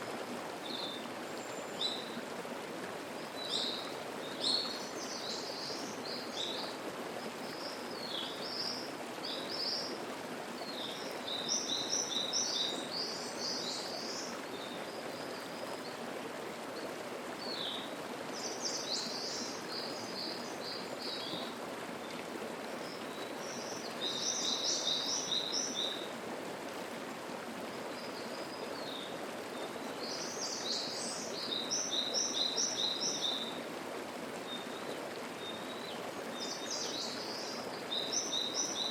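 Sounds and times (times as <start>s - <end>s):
mountain stream babbling: 0.0s - 38.9s
songbirds singing: 3.2s - 6.8s, 10.6s - 16.0s, 16.8s - 22.2s, 22.8s - 26.1s, 28.0s - 33.6s, 34.5s - 38.9s.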